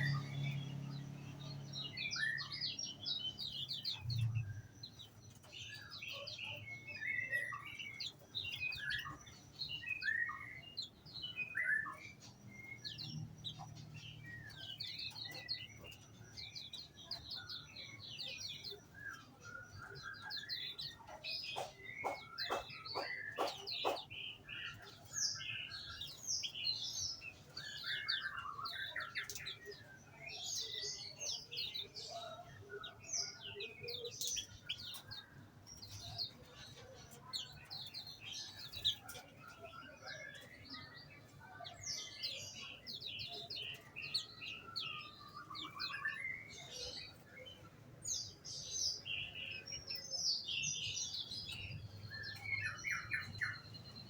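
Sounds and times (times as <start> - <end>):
rapid repeated bird notes: 0.0 - 41.4
songbirds chirping and singing: 0.0 - 54.0.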